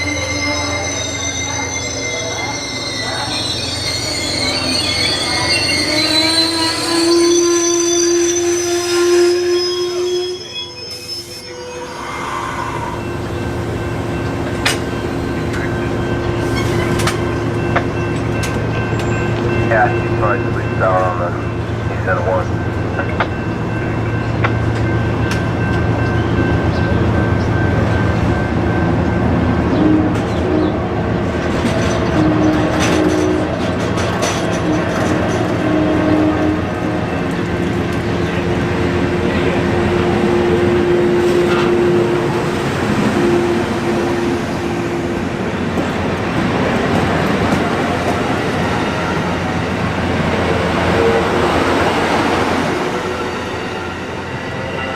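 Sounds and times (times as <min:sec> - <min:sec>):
train wheels squealing: 0:00.0 - 0:17.7
train rumble and hum: 0:00.0 - 0:54.9.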